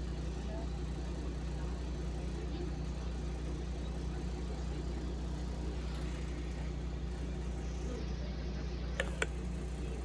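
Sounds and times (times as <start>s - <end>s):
bus engine drone: 0.0s - 10.0s
road and cabin rumble: 5.5s - 10.0s.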